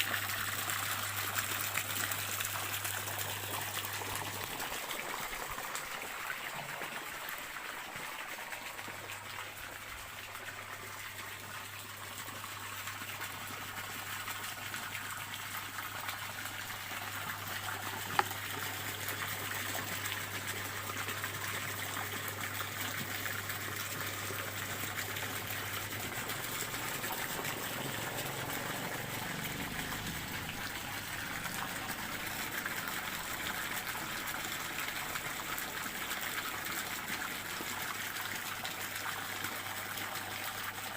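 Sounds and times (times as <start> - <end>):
stream water trickling: 0.0 - 40.9.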